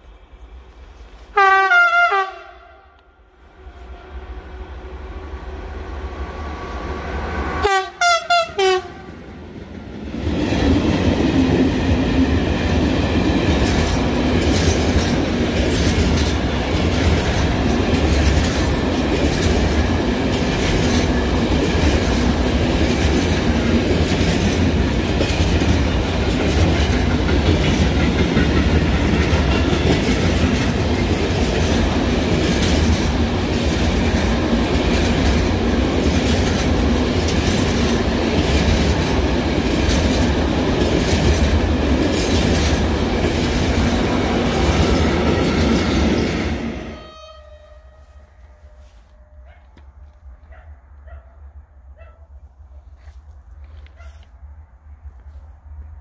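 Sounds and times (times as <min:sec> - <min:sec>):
freight train rumbling past: 0:00.0 - 0:53.6
train horn: 0:01.3 - 0:05.0, 0:07.4 - 0:09.2, 0:46.8 - 0:49.7
short horn blasts: 0:01.4 - 0:03.0, 0:07.6 - 0:09.1, 0:46.8 - 0:49.4
wheels clacking over rail joints: 0:10.8 - 0:46.6.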